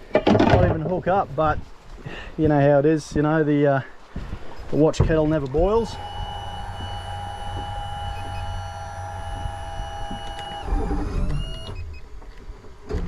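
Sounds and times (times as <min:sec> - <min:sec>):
drone propellers whining: 0:05.5 - 0:12.1.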